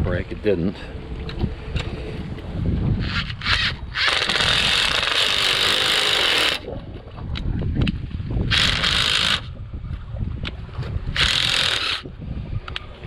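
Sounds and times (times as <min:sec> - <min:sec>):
power drill running: 0:11.2 - 0:12.0.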